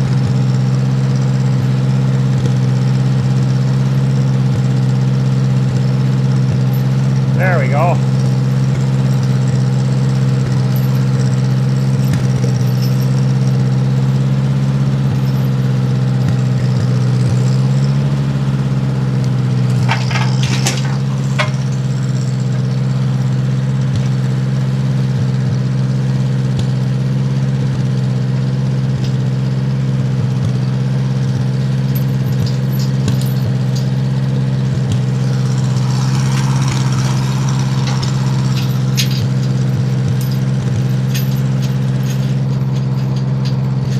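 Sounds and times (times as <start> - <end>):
snowblower engine running: 0.0 - 43.9
light metallic clinks and rattles: 19.0 - 24.2, 34.9 - 43.9.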